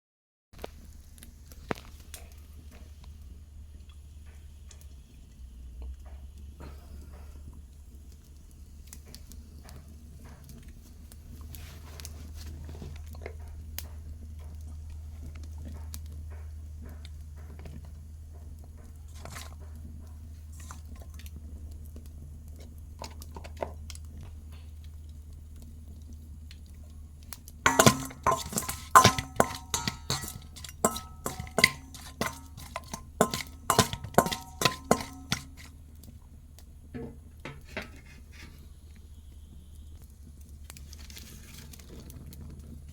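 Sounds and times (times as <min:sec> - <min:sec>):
metal utensil clinking on cookware: 0:27.7 - 0:35.8.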